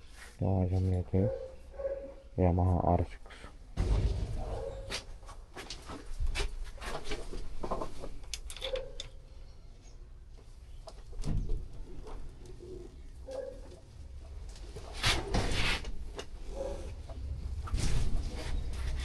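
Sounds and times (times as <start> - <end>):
pigeon cooing: 12.4 - 13.7.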